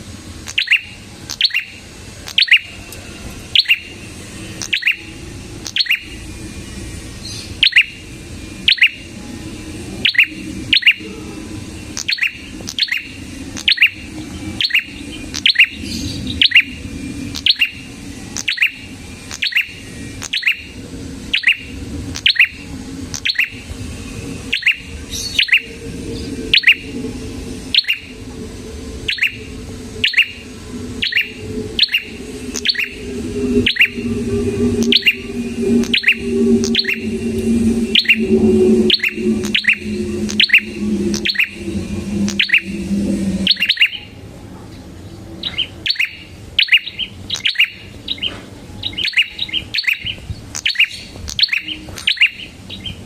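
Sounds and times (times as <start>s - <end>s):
faint low hum: 0.0s - 46.6s
bird chirping: 24.5s - 44.1s.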